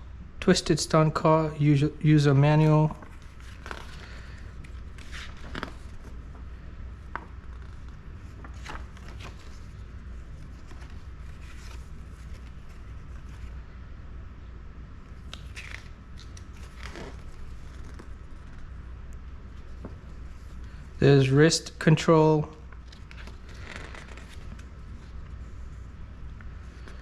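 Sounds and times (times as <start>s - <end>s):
steady low hum: 0.0s - 27.0s
paper and plastic packaging rustling: 2.8s - 13.6s, 22.6s - 25.3s.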